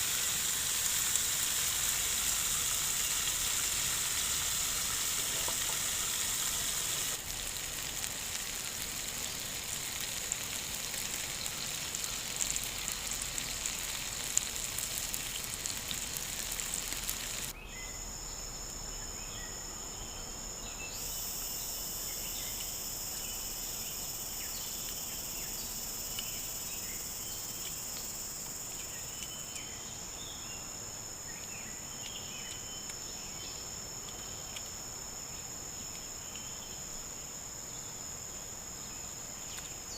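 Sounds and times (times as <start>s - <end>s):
food sizzling on hot stone: 0.0s - 17.5s, 21.0s - 35.3s
small chirps: 0.0s - 18.4s, 19.0s - 37.9s
insects chorus: 0.0s - 39.9s.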